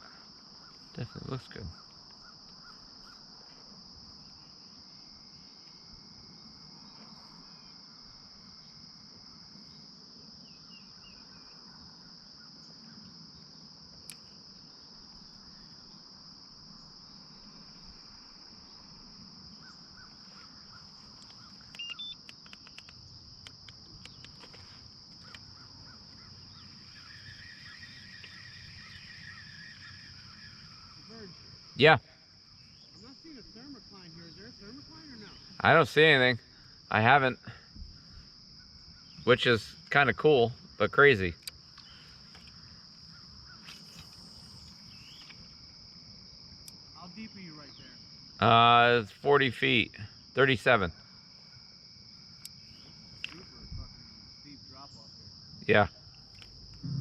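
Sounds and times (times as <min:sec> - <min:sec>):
crickets chirring: 0:00.0 - 0:57.0
faint bird calls: 0:19.5 - 0:22.9, 0:23.9 - 0:31.5, 0:41.8 - 0:45.5
small clicks: 0:21.1 - 0:25.5.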